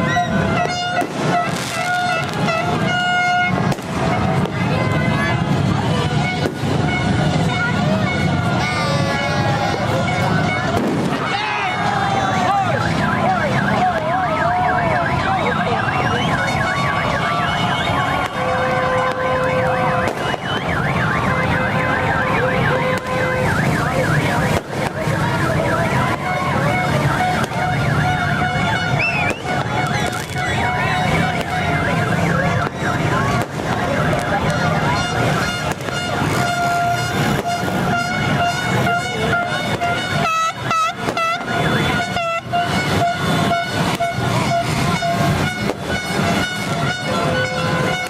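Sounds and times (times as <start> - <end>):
crowd din: 0.0 - 48.0
many horns tooting: 0.0 - 48.0
electronic siren yelping: 11.4 - 48.0
short horn blasts sagging in pitch: 34.6 - 48.0.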